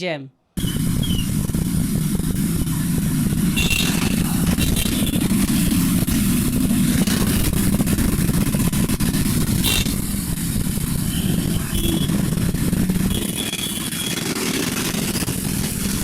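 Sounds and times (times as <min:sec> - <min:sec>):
car engines running: 0:00.6 - 0:16.0
motorcycle engines running: 0:00.6 - 0:16.0.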